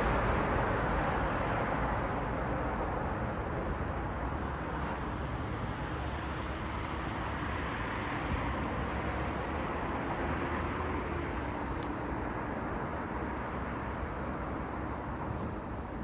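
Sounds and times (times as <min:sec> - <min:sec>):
road traffic hum: 0:00.0 - 0:16.0.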